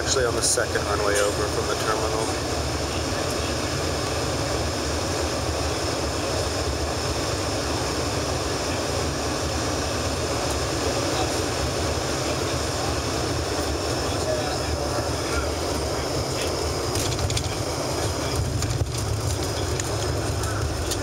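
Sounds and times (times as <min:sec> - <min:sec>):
jet cabin drone: 0:00.0 - 0:21.0.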